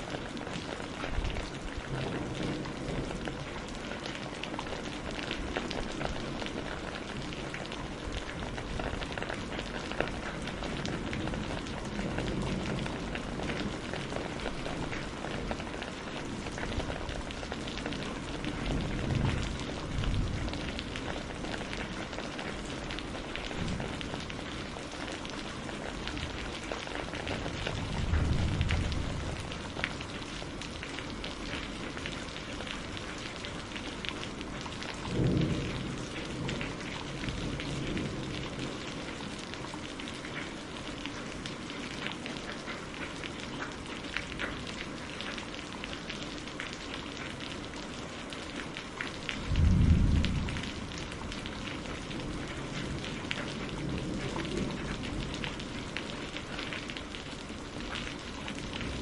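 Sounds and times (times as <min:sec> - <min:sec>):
raindrops ticking: 0:00.0 - 0:59.0
steady rain: 0:00.0 - 0:59.0
low thunder rumbles: 0:00.1 - 0:31.5, 0:34.4 - 0:39.3, 0:49.3 - 0:57.9.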